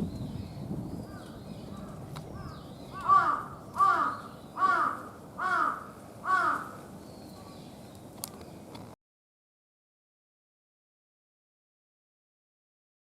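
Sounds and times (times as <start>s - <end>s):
crow cawing: 1.1s - 6.9s.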